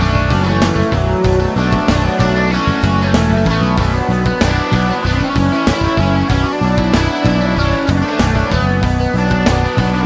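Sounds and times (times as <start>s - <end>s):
distorted electric guitar: 0.0s - 10.0s
drums: 0.0s - 10.0s.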